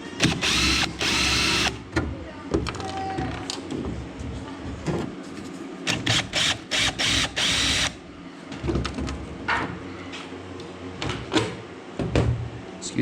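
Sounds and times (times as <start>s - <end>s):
power drill bursts: 0.2s - 1.8s, 5.9s - 8.0s.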